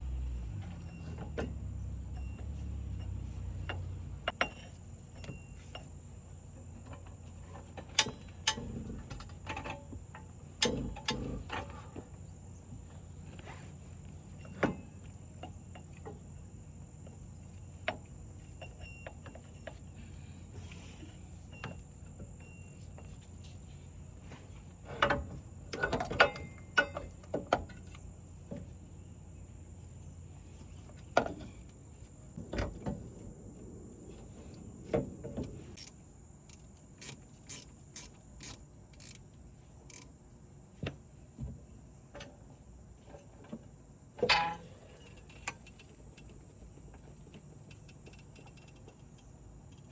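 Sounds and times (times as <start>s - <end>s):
hand tools clicking on car parts: 24.9s - 28.0s, 35.5s - 39.3s, 39.9s - 40.1s.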